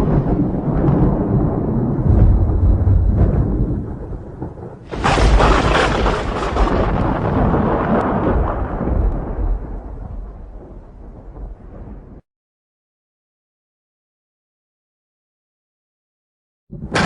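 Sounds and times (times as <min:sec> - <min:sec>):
sharp thunderclap: 0:00.0 - 0:12.2, 0:16.7 - 0:17.0
thunder rumbling: 0:00.0 - 0:12.2, 0:16.7 - 0:17.0.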